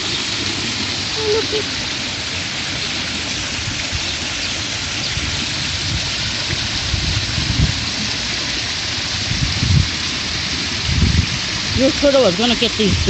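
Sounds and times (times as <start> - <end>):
rushing falling water: 0.0 - 13.0
wind rumble on microphone: 3.4 - 13.0.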